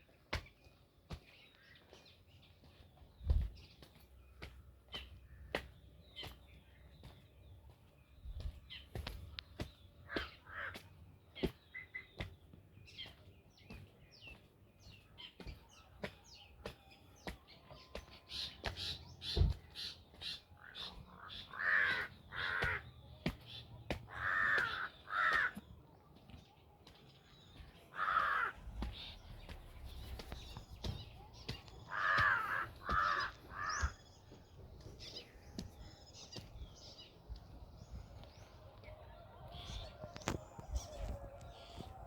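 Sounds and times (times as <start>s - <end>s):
small birds chirping: 0.0s - 42.0s
crows cawing: 10.0s - 10.9s, 20.6s - 23.0s, 24.0s - 25.7s, 27.8s - 29.6s, 31.4s - 34.2s.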